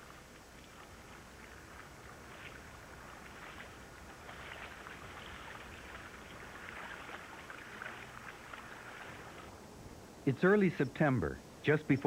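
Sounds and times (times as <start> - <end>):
water splashing and dripping: 0.0 - 9.6.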